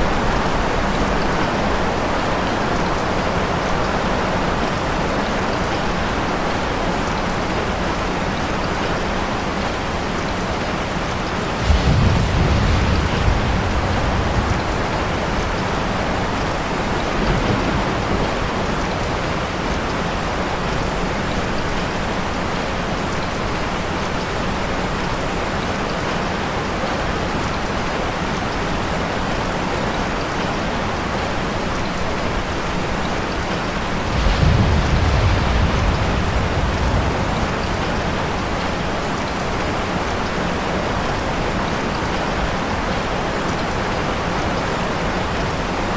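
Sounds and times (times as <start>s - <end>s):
steady rain falling: 0.0s - 45.9s
thunder rumbling: 11.2s - 21.1s, 33.8s - 40.4s.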